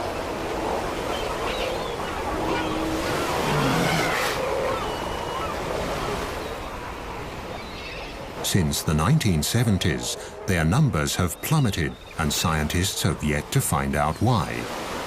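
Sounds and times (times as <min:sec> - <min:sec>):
sea lions honking: 0:00.0 - 0:14.8
surf washing over rocks: 0:08.2 - 0:15.0.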